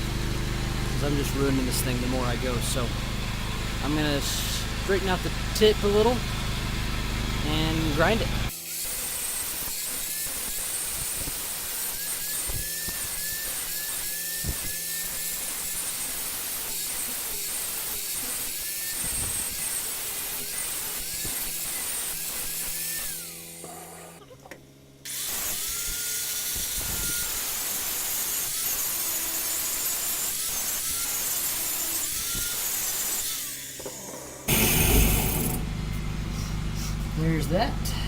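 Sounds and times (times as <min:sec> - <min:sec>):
belt grinder grinding steel: 0:07.5 - 0:24.2, 0:25.1 - 0:35.8.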